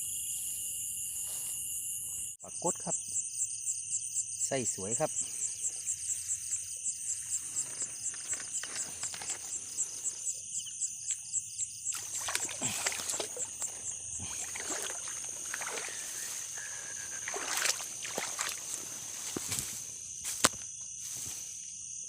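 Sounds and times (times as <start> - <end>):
crickets chirping: 0.0 - 22.0
splashing in shallow water: 11.9 - 20.4.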